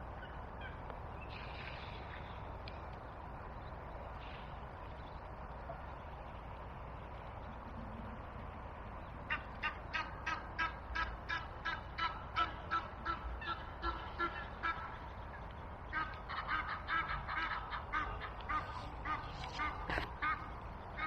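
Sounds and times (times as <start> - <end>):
birds calling: 8.8 - 21.0.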